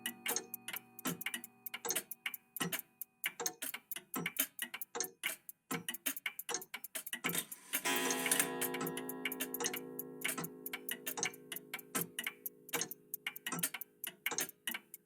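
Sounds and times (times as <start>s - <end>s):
mechanical clocks ticking: 0.0s - 15.0s
clock chime ringing: 7.9s - 9.2s.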